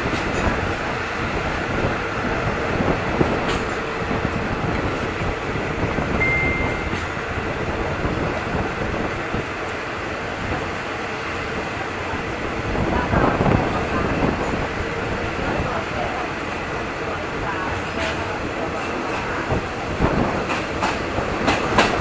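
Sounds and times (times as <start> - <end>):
train wheels rumbling: 0.0 - 22.0
brief high tone: 6.2 - 7.0.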